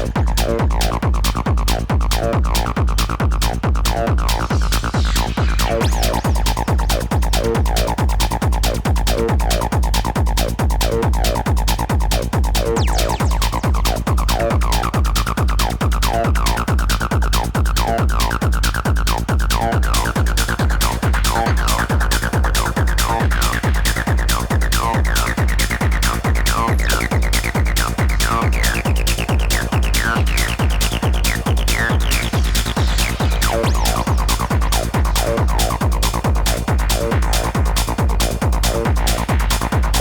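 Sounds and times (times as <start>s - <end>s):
techno kick drum: 0.0s - 40.0s
sweeping synth line: 19.8s - 40.0s.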